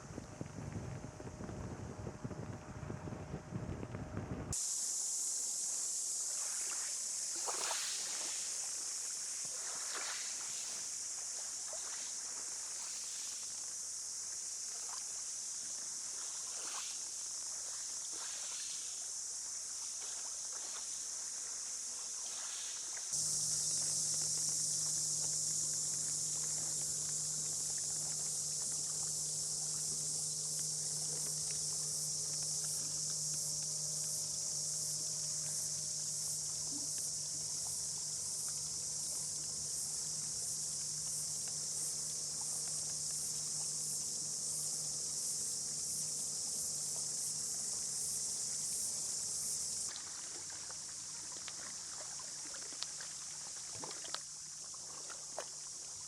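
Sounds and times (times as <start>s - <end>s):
insects shrilling: 4.6s - 14.1s, 22.2s - 52.3s
faint low hum: 23.2s - 52.8s.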